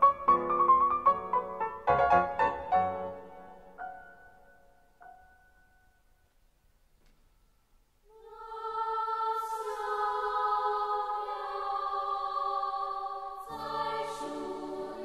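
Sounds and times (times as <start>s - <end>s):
wordless choir chords: 8.1s - 15.0s.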